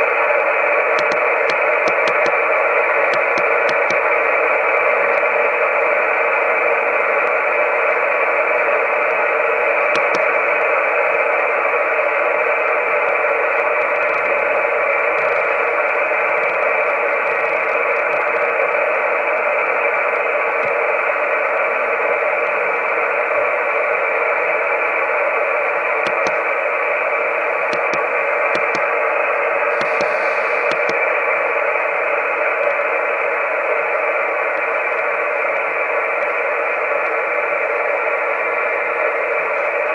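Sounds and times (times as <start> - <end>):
radio static hiss: 0.0 - 39.9
faint clicks: 1.0 - 2.4, 29.8 - 31.0.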